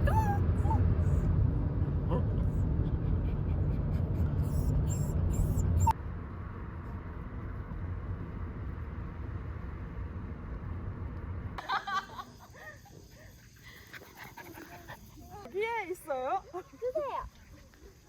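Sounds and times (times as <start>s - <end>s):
road rumble inside moving car: 0.0s - 11.6s.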